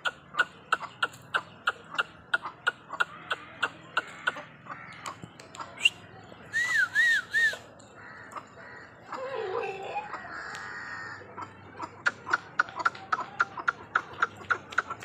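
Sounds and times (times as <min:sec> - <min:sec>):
rapid sharp bird calls: 0:00.0 - 0:09.2, 0:10.0 - 0:15.0.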